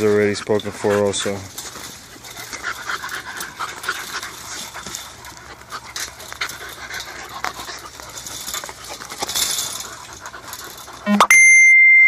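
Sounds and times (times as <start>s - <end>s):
puppies panting: 0.0s - 11.2s.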